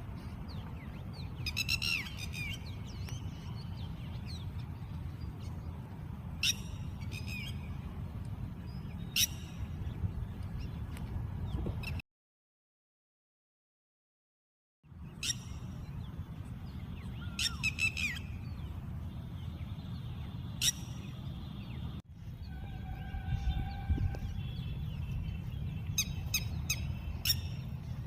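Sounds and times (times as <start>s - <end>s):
lapwing calling: 17.2s - 18.4s.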